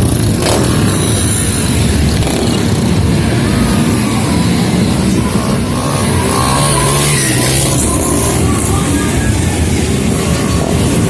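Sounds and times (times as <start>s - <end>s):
motorcycle engines running loudly: 0.0s - 11.0s.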